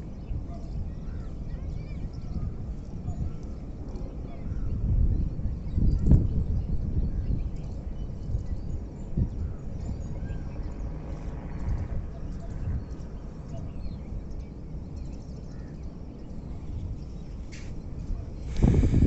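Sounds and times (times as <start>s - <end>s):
steady low rumble: 7.4s - 19.0s.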